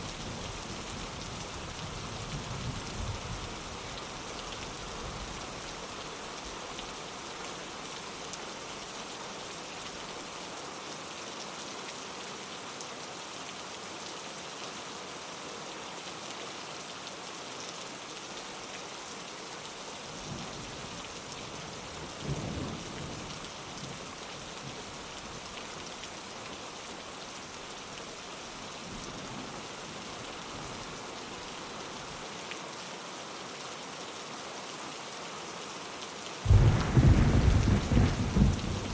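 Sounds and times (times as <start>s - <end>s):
rain pattering on a window: 16.1s - 33.4s, 35.1s - 38.9s
thunder rumbling: 36.5s - 38.9s.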